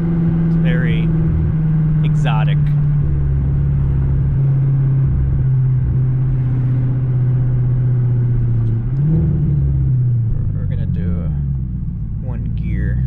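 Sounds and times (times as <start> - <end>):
car engine cruising: 0.0 - 13.0.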